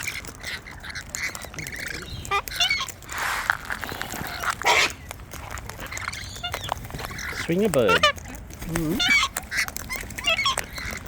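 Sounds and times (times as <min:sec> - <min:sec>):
cockatoos squawking and chattering: 0:00.0 - 0:11.0.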